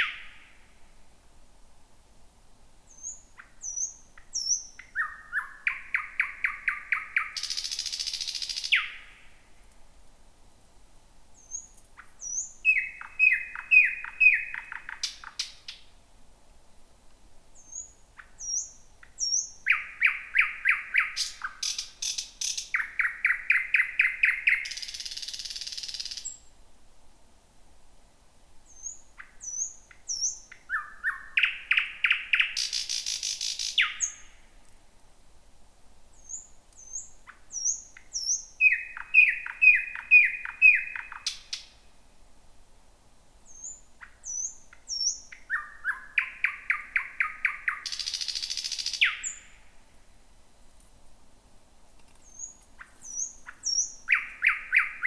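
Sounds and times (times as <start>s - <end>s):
nightingale singing: 0.0s - 0.7s, 2.9s - 9.4s, 11.3s - 15.9s, 17.6s - 26.5s, 28.6s - 34.5s, 36.1s - 41.9s, 43.4s - 49.7s, 52.1s - 55.0s.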